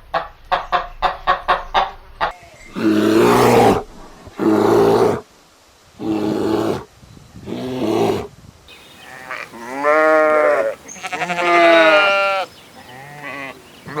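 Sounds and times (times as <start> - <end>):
large animal calling: 2.6 - 5.2, 7.5 - 14.0.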